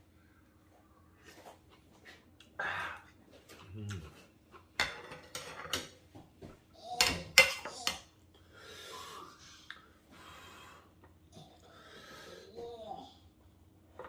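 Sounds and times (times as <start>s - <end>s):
eating sounds: 2.4s - 4.7s
utensils clinking against bowl: 4.8s - 6.0s, 7.0s - 8.1s.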